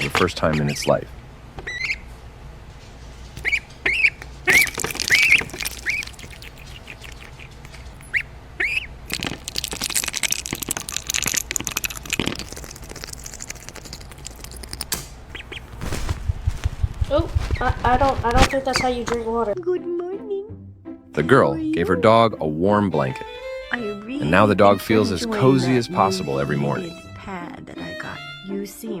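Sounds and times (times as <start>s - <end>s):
noise: 0.0s - 19.6s
duck calling: 3.4s - 9.2s, 15.3s - 15.7s.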